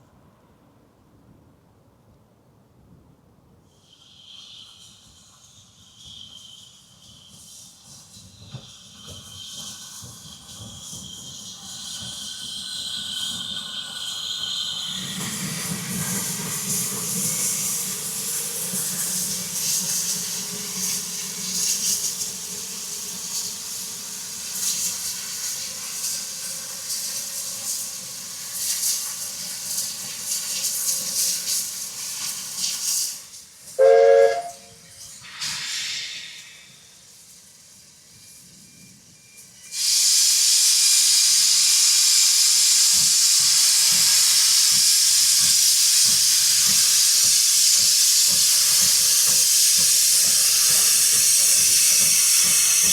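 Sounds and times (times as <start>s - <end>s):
steam locomotive hissing: 3.6s - 52.9s
steam whistle blast: 33.8s - 34.9s.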